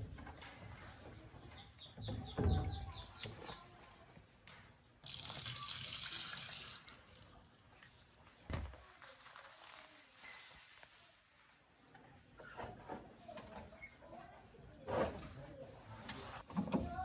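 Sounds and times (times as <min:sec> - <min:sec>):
water running: 0:05.0 - 0:08.2.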